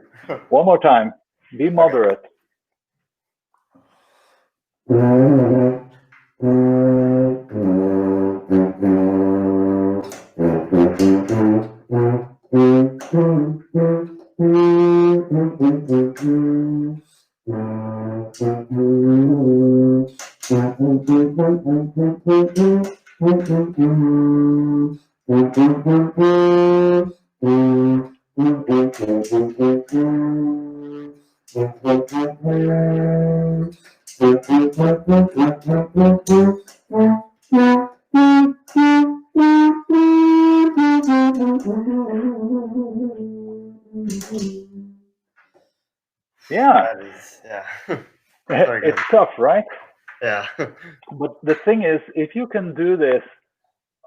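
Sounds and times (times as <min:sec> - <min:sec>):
tuba playing low notes: 0:04.9 - 0:45.0.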